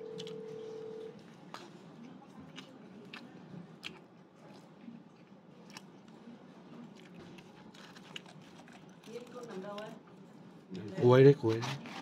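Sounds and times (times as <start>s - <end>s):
person chewing food: 0.0s - 6.2s, 6.8s - 9.9s
low room hum: 0.0s - 10.9s.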